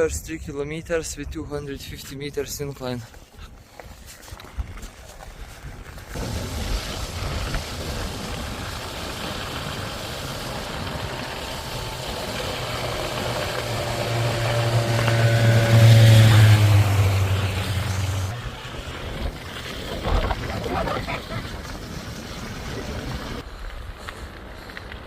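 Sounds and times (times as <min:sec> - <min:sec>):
wind rushing over microphone: 0:05.6 - 0:24.8
vehicle engine passing: 0:08.9 - 0:18.8.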